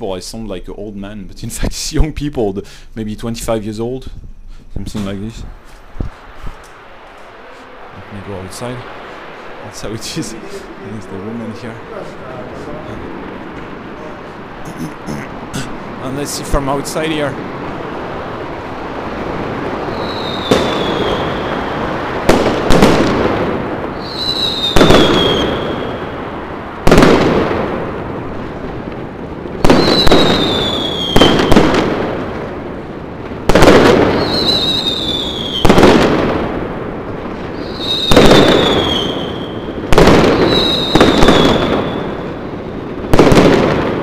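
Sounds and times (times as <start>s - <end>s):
fireworks exploding: 4.9s - 44.0s
high falling whistle: 19.9s - 21.8s, 24.0s - 26.0s, 37.6s - 39.7s, 40.4s - 42.1s.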